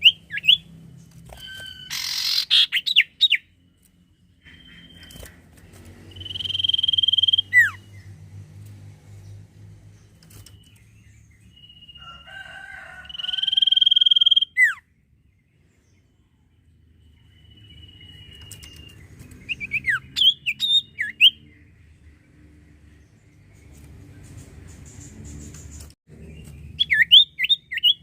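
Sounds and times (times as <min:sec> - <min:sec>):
bird chirping: 0:00.0 - 0:28.0
bird whistling: 0:01.4 - 0:03.4, 0:06.1 - 0:07.8, 0:13.1 - 0:14.8, 0:17.4 - 0:21.4, 0:26.8 - 0:28.0.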